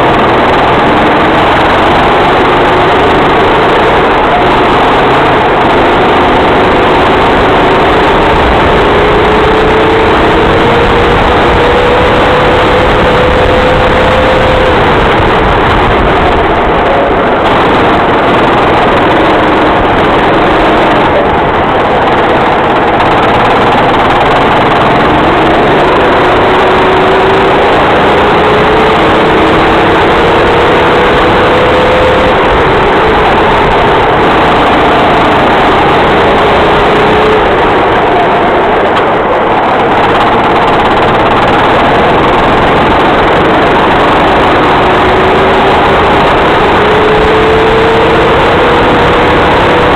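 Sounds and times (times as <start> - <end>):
kart engine accelerating: 0.0 - 49.9
loud rush of noise: 0.0 - 49.9.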